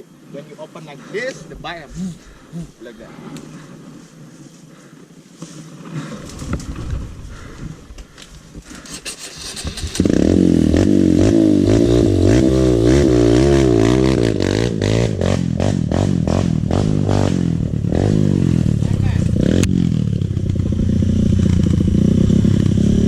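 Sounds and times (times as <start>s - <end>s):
dirt bike engine revving: 8.8s - 23.0s.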